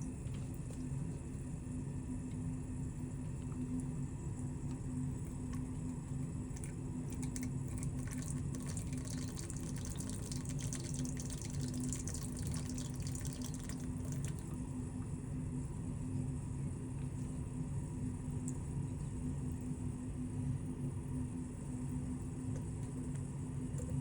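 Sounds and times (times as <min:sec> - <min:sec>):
steady low hum: 0:00.0 - 0:24.0
water dripping: 0:06.5 - 0:14.6
water trickling and splashing: 0:07.0 - 0:14.6.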